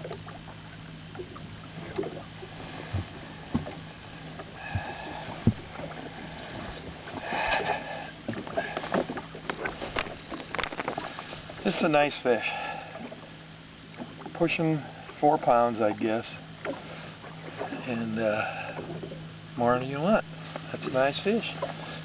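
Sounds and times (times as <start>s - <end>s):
steady low hum: 0.0s - 22.0s
knocks and rubbing of fishing gear: 2.8s - 11.5s.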